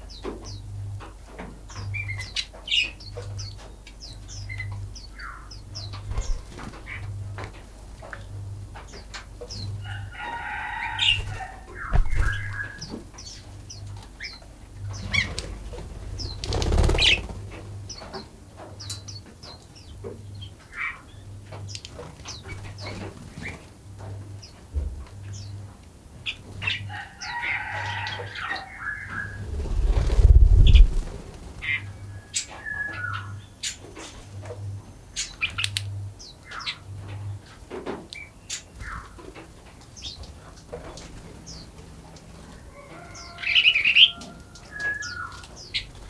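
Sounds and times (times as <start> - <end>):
birds chirping: 1.7 - 7.2, 8.8 - 23.6, 28.2 - 33.8.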